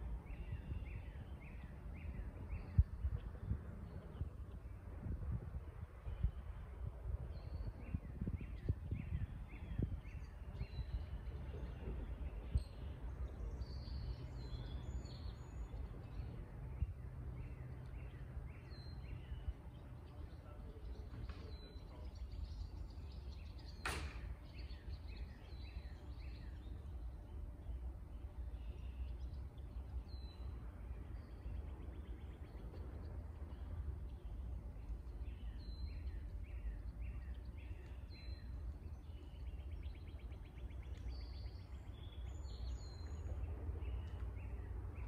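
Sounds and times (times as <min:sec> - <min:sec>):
songbirds calling: 0:00.0 - 0:45.0
sharp click: 0:23.8 - 0:24.4.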